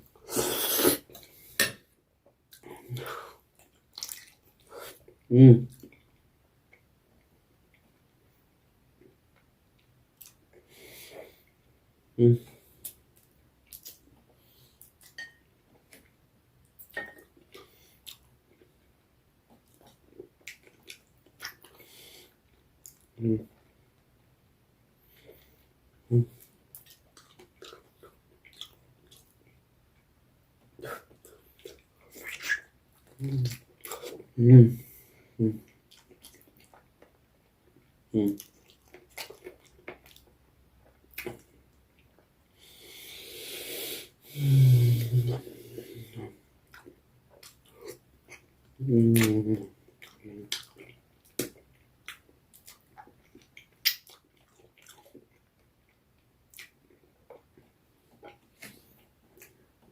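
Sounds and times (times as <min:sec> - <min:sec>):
chewing and wet mouth smacks: 0:02.5 - 0:06.8, 0:09.4 - 0:10.4, 0:12.8 - 0:14.1, 0:19.5 - 0:21.8, 0:22.8 - 0:23.1, 0:26.4 - 0:29.4, 0:30.8 - 0:34.2, 0:35.6 - 0:37.2, 0:38.3 - 0:42.3, 0:46.6 - 0:59.6.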